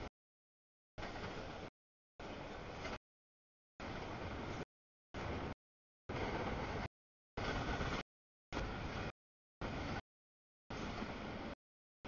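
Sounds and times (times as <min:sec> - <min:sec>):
freight train cars rumbling: 0:05.2 - 0:08.0.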